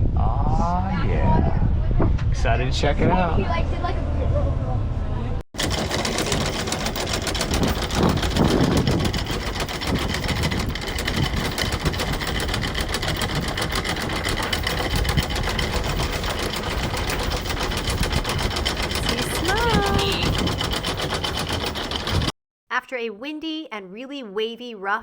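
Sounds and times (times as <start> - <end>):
boat engine rattling: 5.6 - 22.3.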